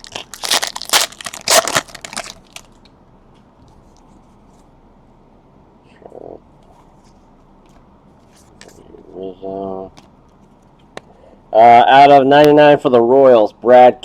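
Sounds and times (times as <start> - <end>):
card pack wrapper ripping: 0.0 - 2.8.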